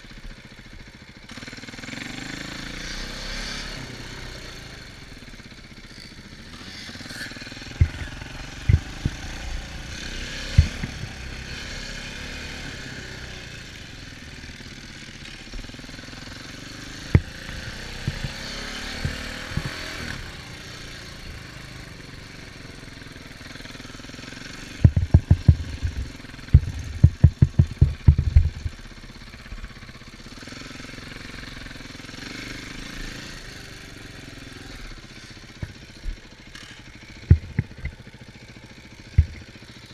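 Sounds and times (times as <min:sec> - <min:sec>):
off-road vehicle engine: 0:00.0 - 0:39.9
low thumps: 0:07.8 - 0:11.3, 0:17.1 - 0:19.9, 0:24.8 - 0:28.8, 0:37.3 - 0:38.0, 0:39.2 - 0:39.4.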